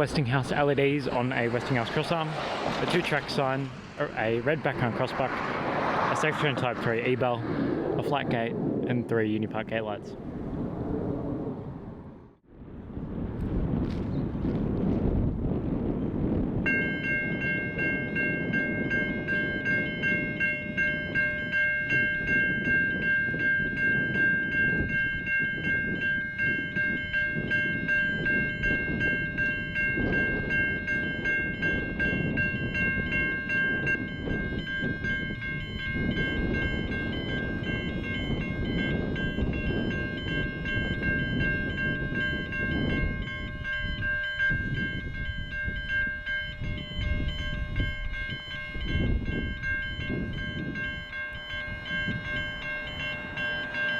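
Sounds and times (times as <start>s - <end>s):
level crossing bells ringing: 0.0s - 5.4s, 16.7s - 53.9s
train rumbling over crossing: 0.0s - 7.6s, 16.7s - 53.9s.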